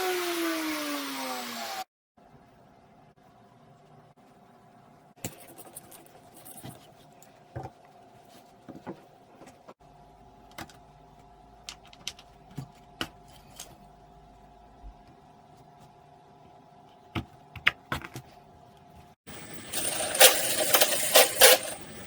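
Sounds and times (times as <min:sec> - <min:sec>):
small hard parts clicking: 0:19.5 - 0:22.0.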